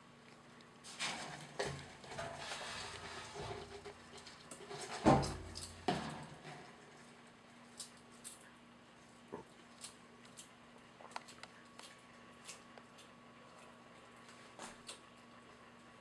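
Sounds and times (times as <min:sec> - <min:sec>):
lizard scuffling and rustling: 0:00.8 - 0:08.3.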